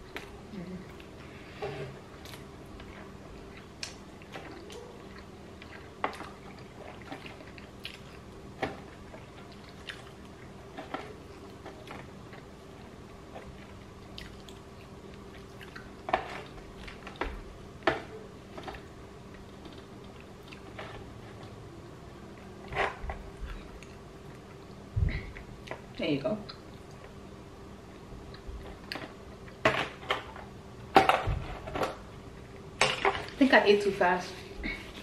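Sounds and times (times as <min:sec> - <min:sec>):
faint steady hum: 0:00.0 - 0:35.0
person chewing: 0:02.2 - 0:17.2, 0:18.7 - 0:21.5, 0:22.3 - 0:25.8.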